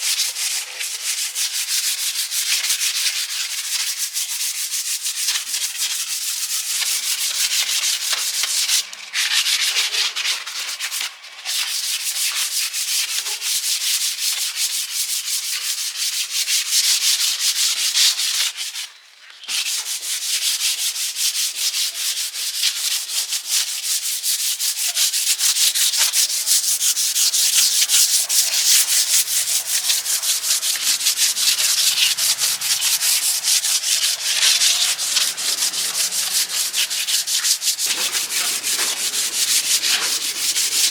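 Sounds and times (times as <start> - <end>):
sanding scrape: 19.6 - 40.9.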